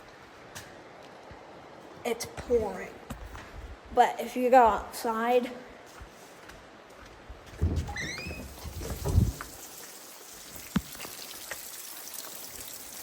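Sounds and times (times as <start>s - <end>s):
bumping and rumbling: 7.6s - 9.6s.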